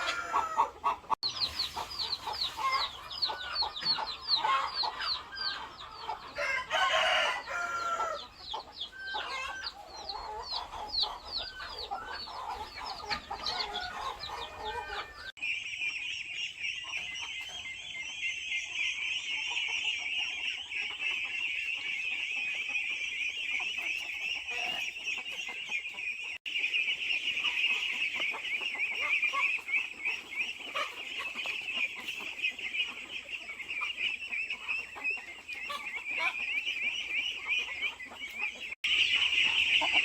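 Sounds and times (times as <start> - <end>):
rooster crowing: 0.0 - 0.7, 6.4 - 8.3
chickens clucking: 0.0 - 40.0.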